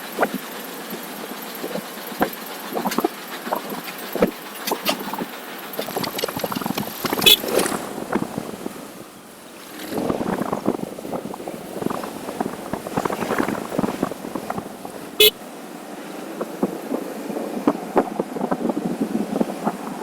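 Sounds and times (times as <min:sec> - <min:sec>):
wind buffeting microphone: 0:02.7 - 0:20.0
short horn beep: 0:07.2 - 0:07.6.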